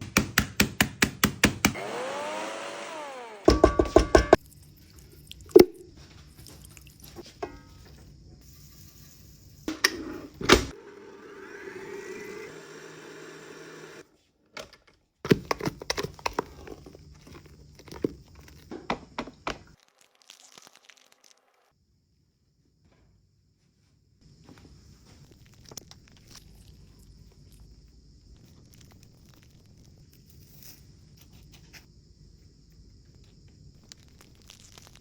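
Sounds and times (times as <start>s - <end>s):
sharp knocks: 3.5s - 4.4s.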